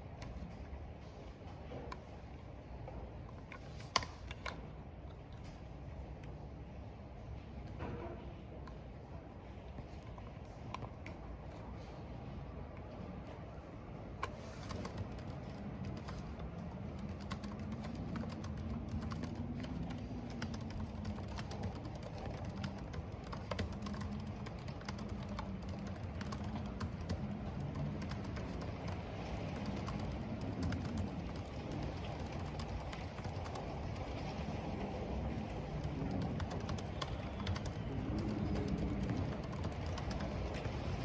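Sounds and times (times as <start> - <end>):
low wind howl: 0.0 - 41.0
wind and rain: 0.0 - 41.0
keyboard typing: 14.2 - 41.0.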